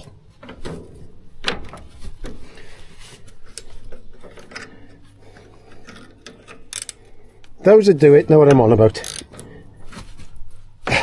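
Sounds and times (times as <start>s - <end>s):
hand tools clicking on metal nut: 5.7s - 7.0s, 8.5s - 9.4s.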